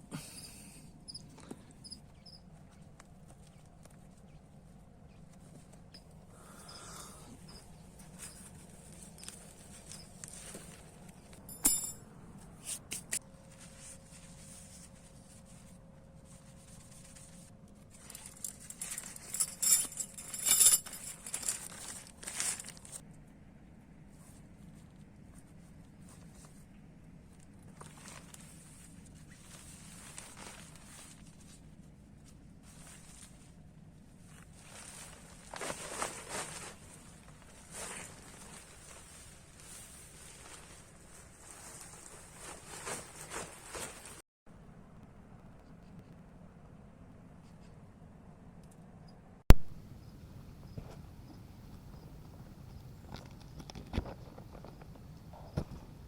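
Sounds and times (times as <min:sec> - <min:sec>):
rustling: 0:07.4 - 0:23.1, 0:24.1 - 0:44.2.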